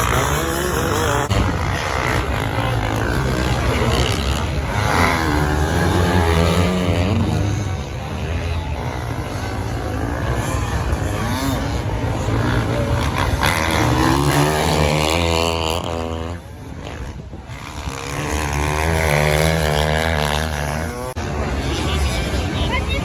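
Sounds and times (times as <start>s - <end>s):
motorbikes and quads revving by: 0.0s - 23.0s.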